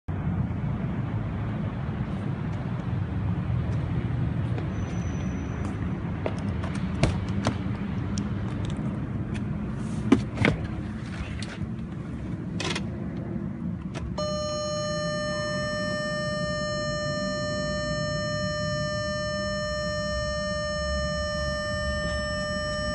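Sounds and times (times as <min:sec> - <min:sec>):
steady pitched tone: 0:14.2 - 0:22.9.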